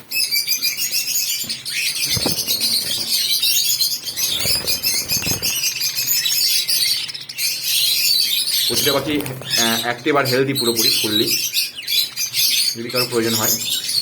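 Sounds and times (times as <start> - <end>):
budgerigars chattering: 0.0 - 14.0
dull thumps: 2.0 - 3.1.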